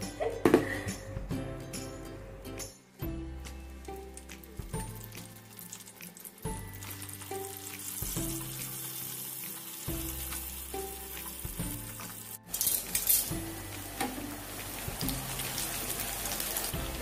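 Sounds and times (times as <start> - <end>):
background music melody: 0.0 - 17.0
food sizzling in frying pan: 3.8 - 17.0.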